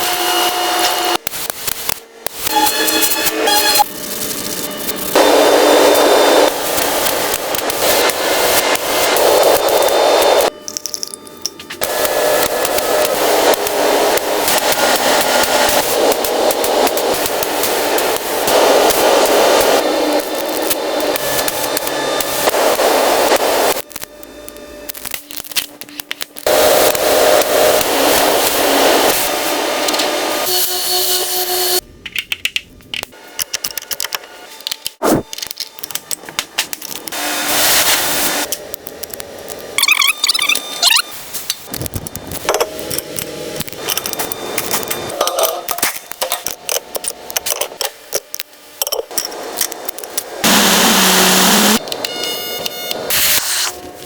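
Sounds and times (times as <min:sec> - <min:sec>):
power tool whining: 0:50.4 - 0:54.0.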